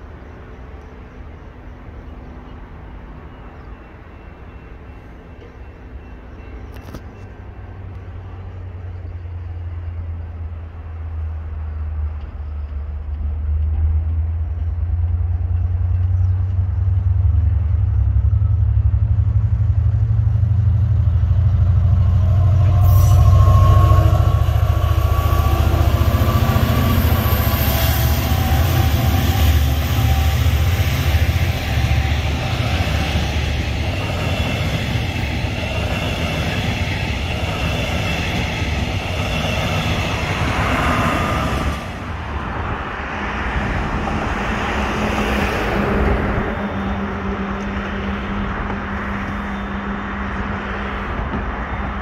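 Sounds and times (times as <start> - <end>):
train rumbling past: 0.0 - 52.0
high thin whine: 20.9 - 42.2.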